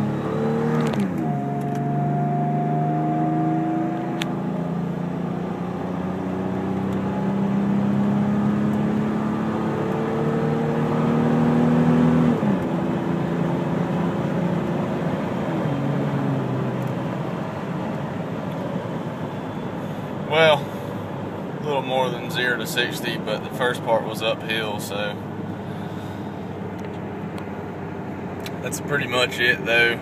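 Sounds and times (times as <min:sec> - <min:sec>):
engine at full throttle: 0:00.0 - 0:18.0
road noise: 0:00.0 - 0:30.0.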